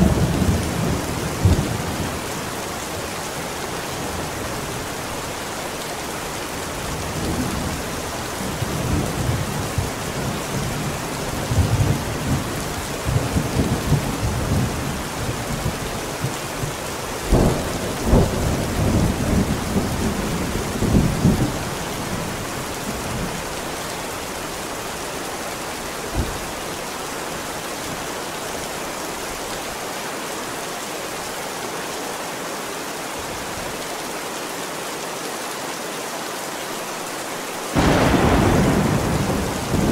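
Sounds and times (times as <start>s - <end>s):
heavy rain: 0.0s - 39.9s
rolling thunder: 37.8s - 39.9s
sharp thunder crack: 37.8s - 39.9s.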